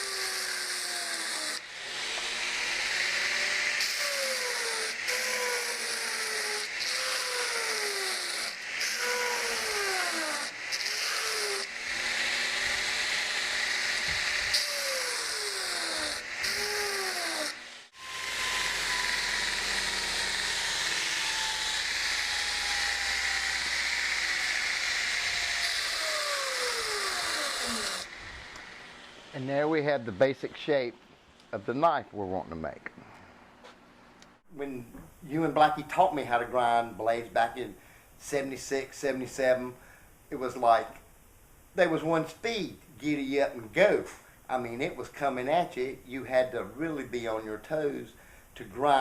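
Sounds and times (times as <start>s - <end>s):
belt grinder grinding steel: 0.0s - 29.0s.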